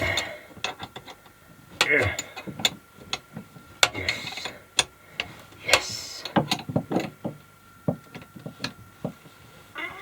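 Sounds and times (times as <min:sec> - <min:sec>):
clicks and knocks of plumbing tools: 0:00.0 - 0:09.2
scraping rustles: 0:08.0 - 0:10.0.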